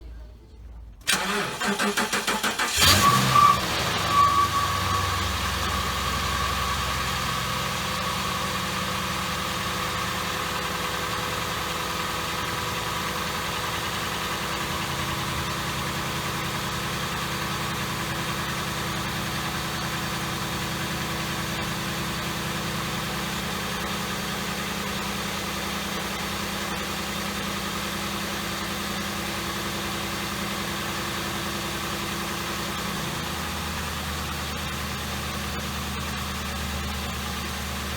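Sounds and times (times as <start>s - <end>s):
car engine idling: 1.0s - 37.9s.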